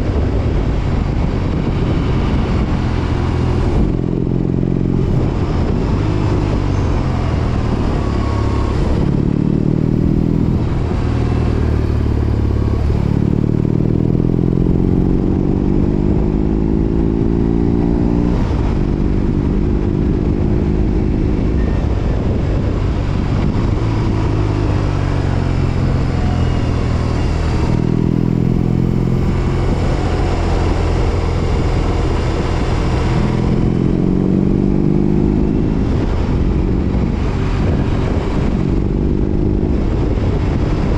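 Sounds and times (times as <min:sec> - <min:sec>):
motorcycle engine accelerating through gears: 0:00.0 - 0:40.9.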